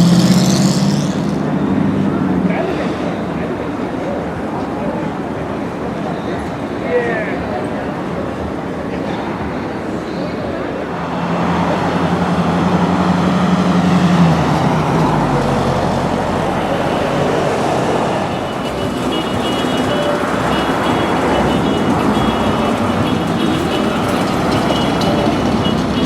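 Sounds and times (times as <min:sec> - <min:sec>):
car engines: 0:00.0 - 0:26.0
pickup truck engine running: 0:14.2 - 0:26.0.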